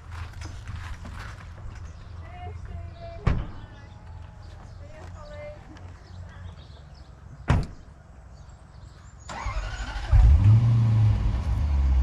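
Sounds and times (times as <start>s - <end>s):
dirt bike engine starting and running: 9.3s - 12.0s.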